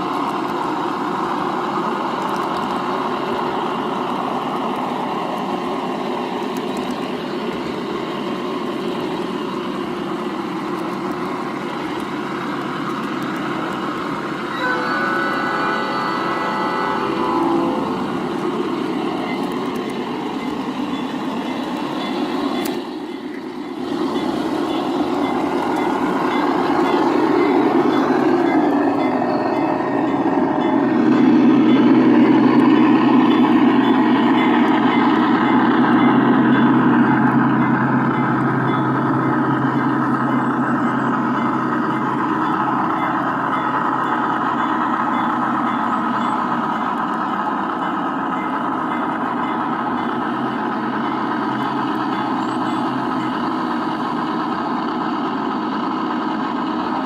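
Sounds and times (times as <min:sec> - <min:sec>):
model train diesel engine sound: 0:00.0 - 0:57.0
wheels rumbling on track: 0:00.0 - 0:57.0
model train horn: 0:14.4 - 0:18.5.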